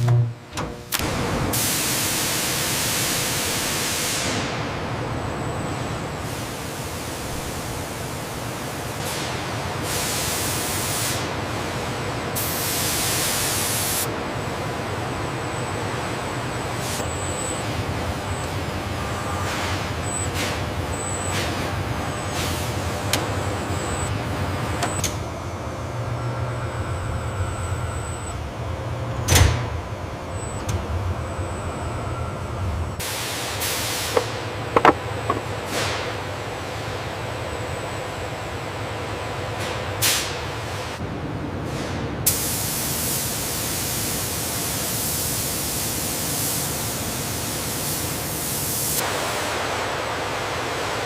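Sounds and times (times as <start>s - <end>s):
low machinery hum: 14.1s - 41.6s.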